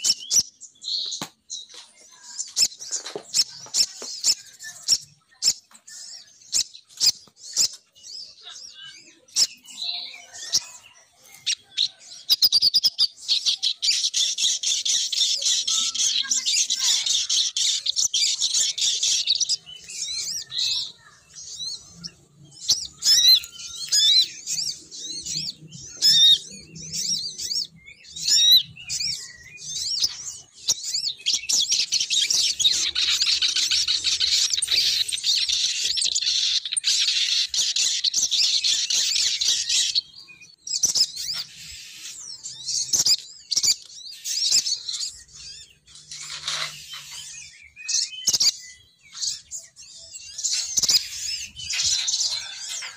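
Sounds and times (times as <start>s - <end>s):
bird chirping: 0.0s - 52.9s.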